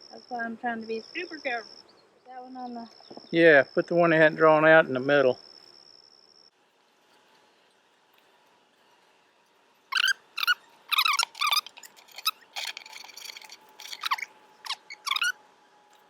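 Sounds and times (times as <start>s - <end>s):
hive frames squeaking and scraping: 9.9s - 15.4s
honeybees humming: 9.9s - 16.0s.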